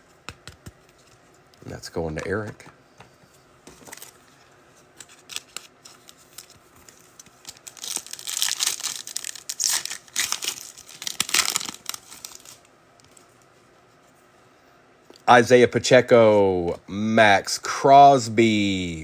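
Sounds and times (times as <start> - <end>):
foil wrapper tearing and crinkling: 7.3 - 12.7.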